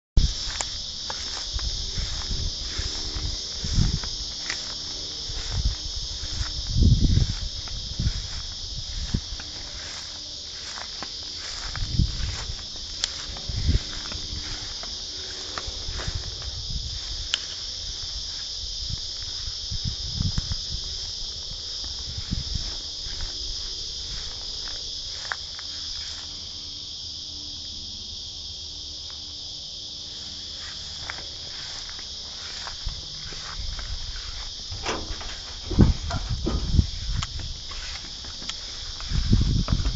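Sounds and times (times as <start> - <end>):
insects chorus: 0.2 - 39.9
footsteps thumping: 30.4 - 39.9.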